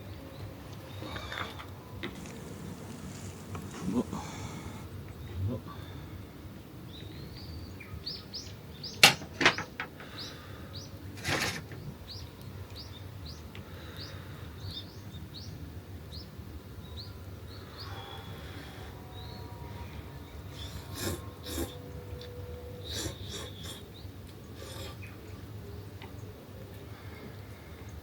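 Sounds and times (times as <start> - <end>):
rustling: 2.0 - 4.8.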